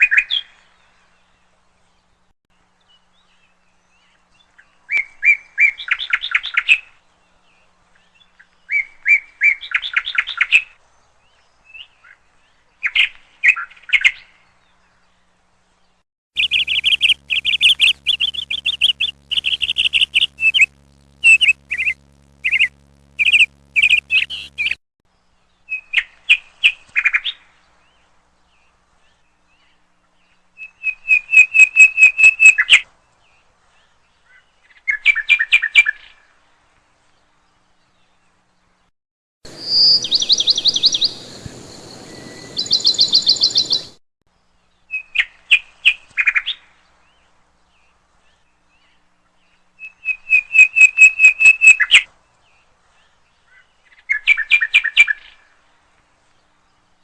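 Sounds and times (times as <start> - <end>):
higher-pitched bird song: 16.4 - 24.8, 39.5 - 44.0
songbird chirping sharp notes: 16.4 - 24.8, 39.5 - 44.0.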